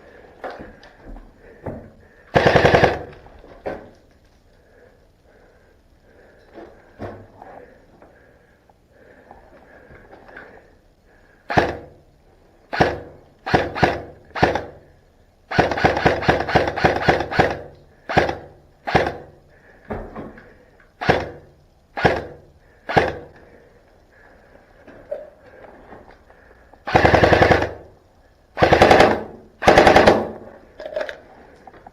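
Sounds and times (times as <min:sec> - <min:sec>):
airsoft gun shots: 0:12.7 - 0:14.8, 0:15.5 - 0:19.3.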